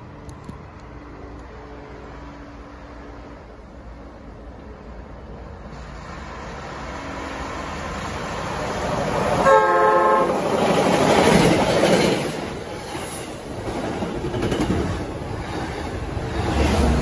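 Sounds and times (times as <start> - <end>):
train coaches passing: 0.0 - 17.0
train horn blast: 9.4 - 10.5.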